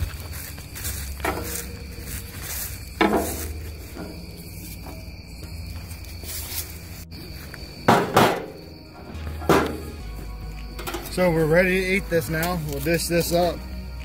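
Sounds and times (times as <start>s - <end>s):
insect trill: 0.0s - 14.0s
lid scraping on metal grill: 3.0s - 5.1s
sharp metallic clank: 7.9s - 10.0s.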